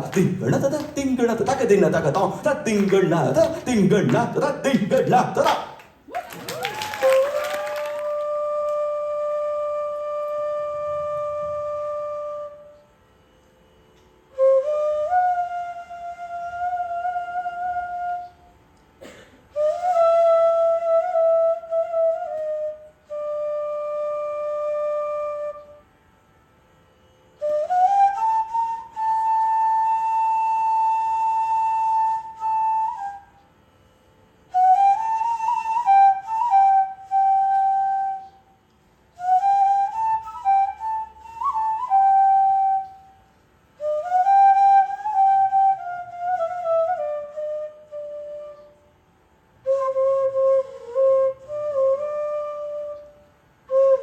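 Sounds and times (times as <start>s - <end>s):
solo flute melody: 0.0s - 54.0s.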